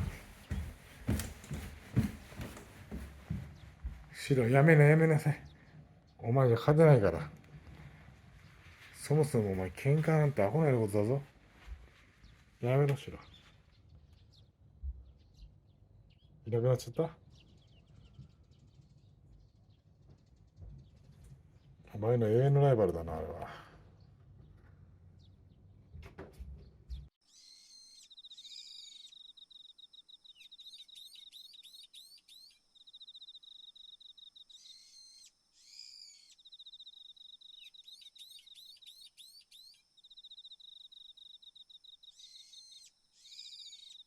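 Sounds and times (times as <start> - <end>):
bird trilling and chirping: 27.3 - 44.0.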